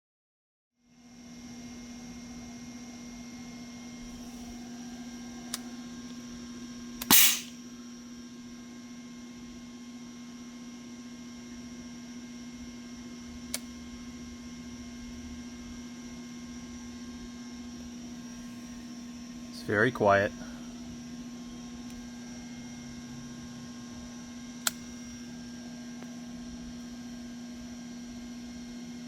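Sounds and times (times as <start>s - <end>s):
loud sharp clack: 7.0s - 7.5s.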